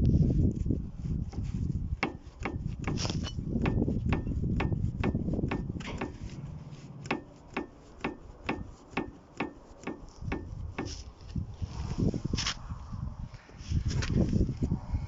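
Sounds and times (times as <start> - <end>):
car suspension knocking: 2.0 - 3.0, 3.6 - 6.4, 7.0 - 10.9.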